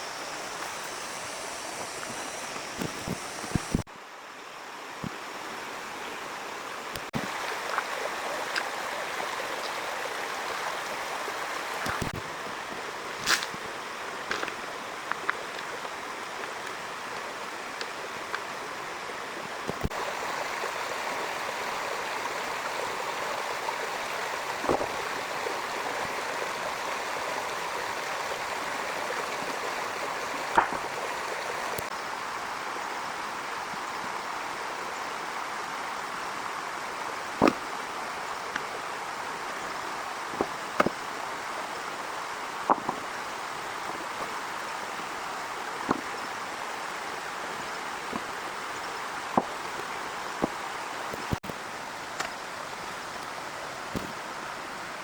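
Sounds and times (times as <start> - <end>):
heavy rainfall: 6.8 - 55.0.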